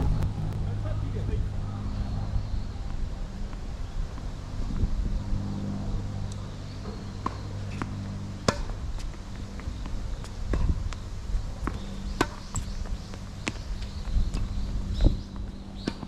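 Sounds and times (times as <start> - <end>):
steady low hum: 0.0 - 16.0
tennis ball hits and bounces: 6.8 - 9.1, 11.6 - 12.7.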